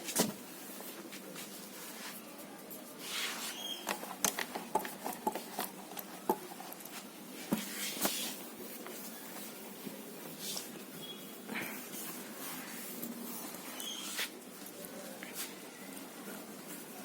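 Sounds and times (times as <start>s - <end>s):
cloth rubbing: 2.9s - 3.8s, 6.9s - 14.7s.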